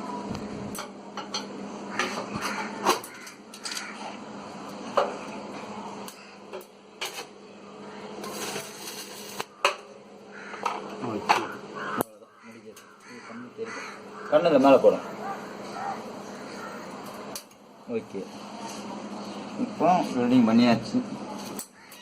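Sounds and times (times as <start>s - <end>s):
steady low hum: 0.0s - 22.0s
welding crackles: 8.2s - 9.6s.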